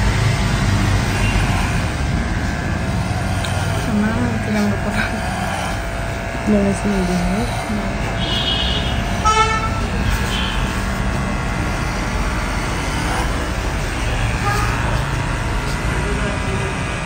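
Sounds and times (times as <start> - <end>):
road traffic rumble: 0.0 - 17.0
vehicle horn honking: 8.2 - 10.7, 14.3 - 15.0.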